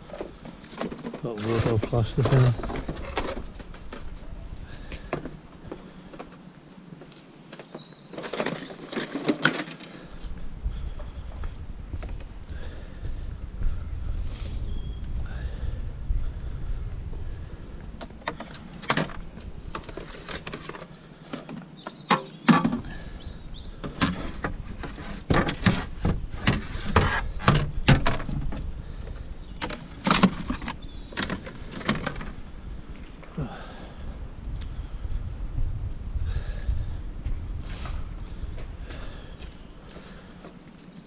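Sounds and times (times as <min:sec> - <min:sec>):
junk items clattering: 0:00.0 - 0:04.2, 0:07.7 - 0:10.2, 0:18.0 - 0:32.5.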